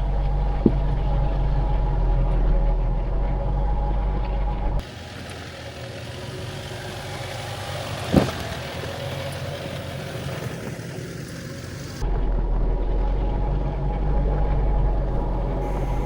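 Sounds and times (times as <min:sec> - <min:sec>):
deep loud rumble: 0:00.0 - 0:04.8
off-road vehicle engine running: 0:00.0 - 0:16.0.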